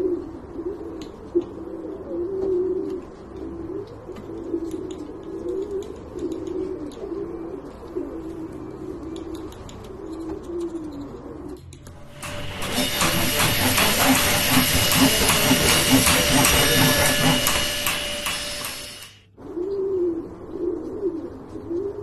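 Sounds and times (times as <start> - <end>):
dove cooing: 0.0 - 11.6, 19.4 - 22.0
loud steady hiss: 12.0 - 19.3.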